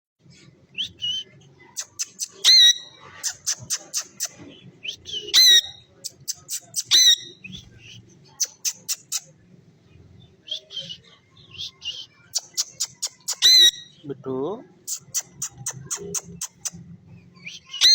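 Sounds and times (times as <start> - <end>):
parrot clicks and chirps: 1.8 - 2.6, 6.0 - 7.2, 8.4 - 9.3, 12.3 - 13.7, 14.9 - 16.8
parrot squawking: 1.8 - 4.4, 5.0 - 7.5, 8.4 - 9.3, 11.6 - 14.0, 14.9 - 16.8, 17.5 - 17.9.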